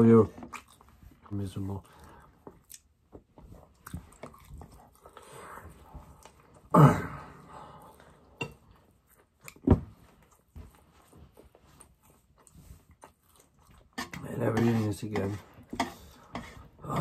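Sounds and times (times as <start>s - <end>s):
person chewing: 0.3s - 9.6s, 10.2s - 14.1s
throat clearing: 6.7s - 7.3s.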